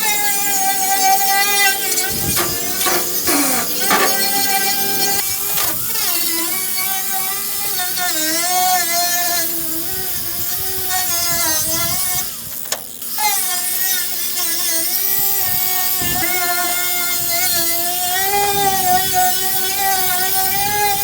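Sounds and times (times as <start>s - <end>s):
angle grinder on rusty steel: 0.0s - 14.6s
grinder click: 1.8s - 6.0s, 12.2s - 13.0s.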